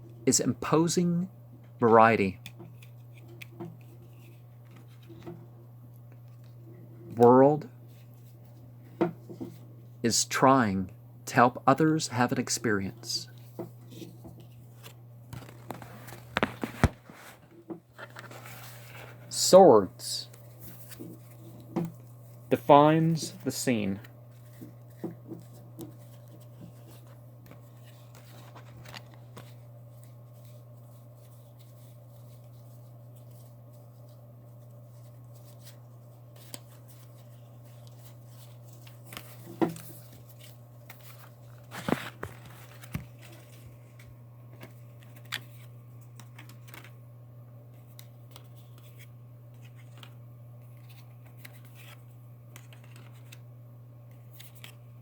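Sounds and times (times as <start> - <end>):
low electrical hum: 0.0 - 55.0
cards sliding and tapping: 2.4 - 5.4, 13.4 - 19.2, 47.8 - 53.4.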